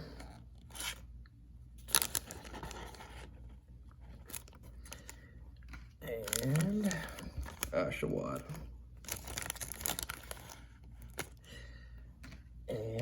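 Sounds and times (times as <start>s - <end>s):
card packaging crinkling: 0.1s - 1.1s, 1.8s - 5.2s, 6.1s - 11.5s.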